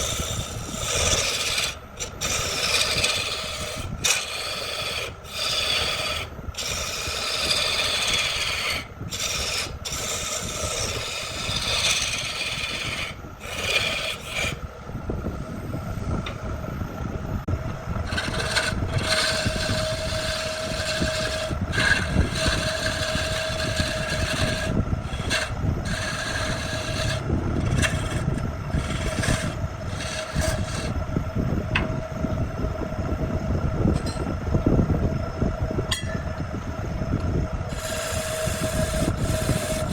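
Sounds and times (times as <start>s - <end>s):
tool rasping on wood: 0.0s - 14.6s, 18.0s - 31.0s, 37.7s - 39.9s
motor hum: 0.0s - 39.9s.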